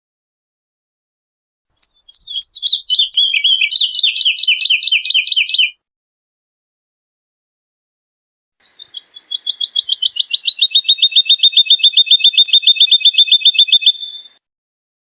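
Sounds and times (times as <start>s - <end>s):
bird singing a trill: 1.8s - 5.8s, 8.6s - 14.4s.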